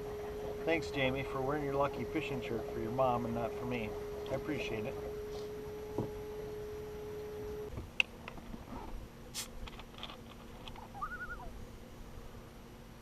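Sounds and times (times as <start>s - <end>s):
steady hum: 0.0s - 9.8s
warbling bird call: 10.8s - 11.6s.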